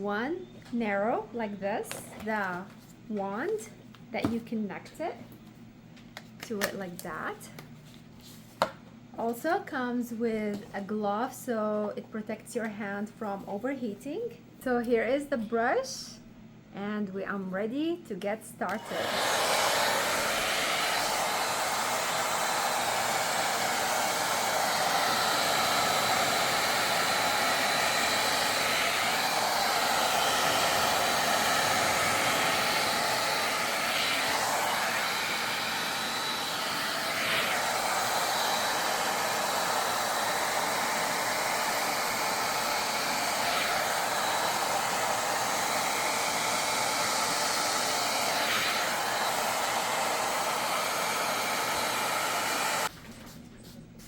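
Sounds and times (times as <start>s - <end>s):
hair dryer blowing air: 18.7s - 52.9s.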